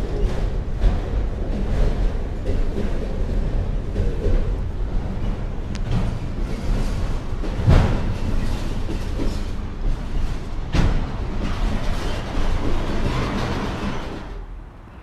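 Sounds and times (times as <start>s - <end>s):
freight train wheels rumbling: 0.0s - 15.0s
heavy train clank: 0.0s - 15.0s.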